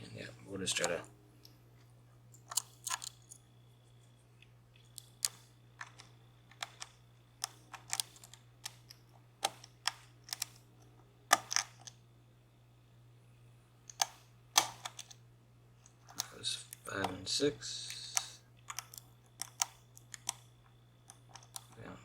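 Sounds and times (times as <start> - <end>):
faint low hum: 0.0 - 22.0
lock pick clicking: 2.4 - 3.4, 4.8 - 10.6, 11.3 - 11.9, 13.9 - 15.2, 18.0 - 20.4, 21.1 - 21.8.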